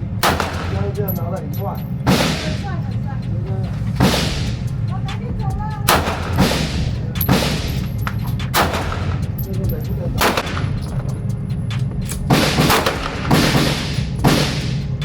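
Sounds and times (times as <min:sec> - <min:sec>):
steady low rumble: 0:00.0 - 0:15.0
handgun shots: 0:00.2 - 0:01.1, 0:05.9 - 0:09.2, 0:10.2 - 0:11.0, 0:12.1 - 0:14.8.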